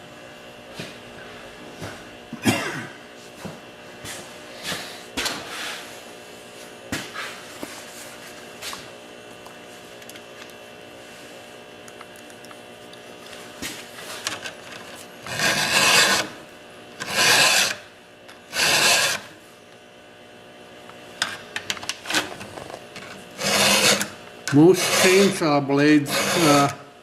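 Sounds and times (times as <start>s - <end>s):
file rasping on chain tooth: 15.2s - 16.4s, 17.0s - 17.8s, 18.5s - 19.3s, 23.4s - 25.4s, 26.0s - 26.8s.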